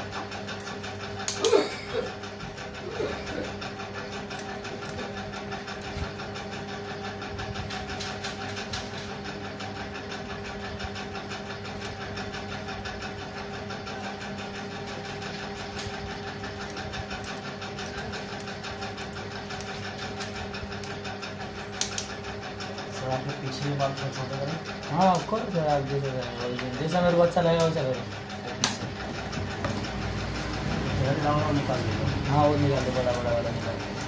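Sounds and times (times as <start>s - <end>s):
electric hair clipper buzzing: 4.3s - 6.0s.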